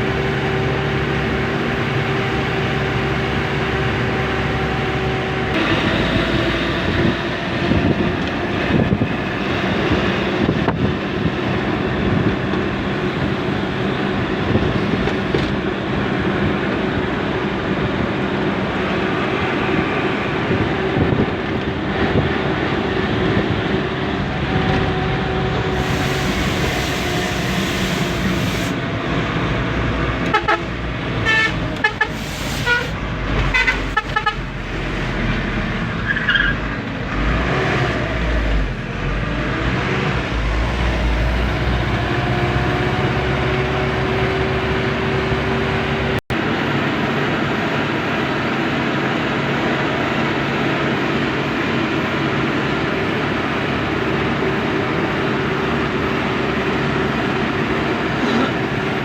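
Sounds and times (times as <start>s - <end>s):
truck engine running: 0.0s - 36.0s
short horn toots: 30.3s - 34.5s.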